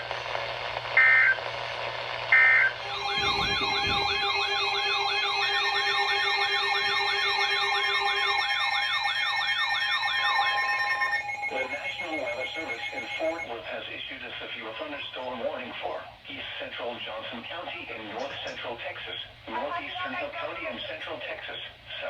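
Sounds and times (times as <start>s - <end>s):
yelp electronic siren: 2.4s - 13.5s
steady tones: 2.8s - 13.5s
short high beeps: 10.0s - 13.5s.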